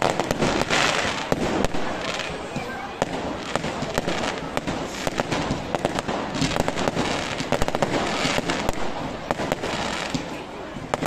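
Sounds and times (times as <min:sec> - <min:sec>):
continuous crackling hiss: 0:00.0 - 0:11.0
fireworks bangs and crackles: 0:00.0 - 0:11.0.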